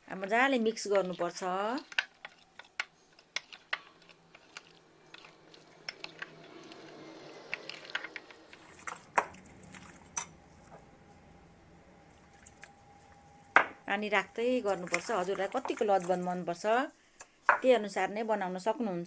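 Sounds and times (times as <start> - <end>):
wet squelch of mash: 0.2 - 10.7.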